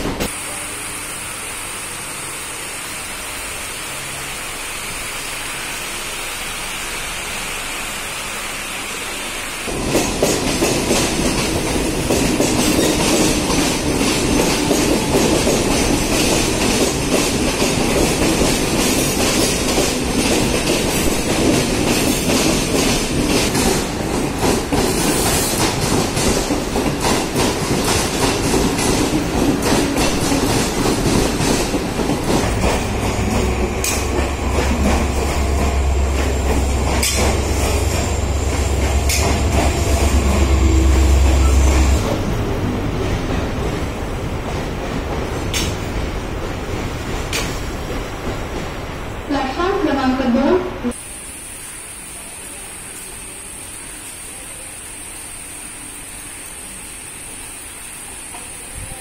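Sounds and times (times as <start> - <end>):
hiss with high whine: 0.1 - 9.7, 51.0 - 59.0
train wheels clattering on rails: 9.7 - 49.0.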